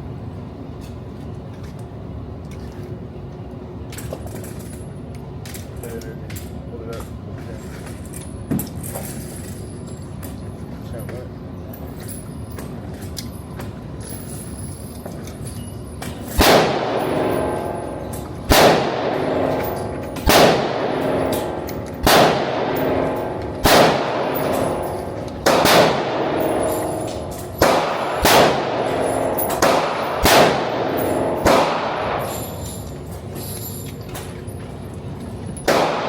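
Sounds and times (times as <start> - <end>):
gunshots with metallic ringing echo: 16.2 - 33.1, 35.6 - 36.0.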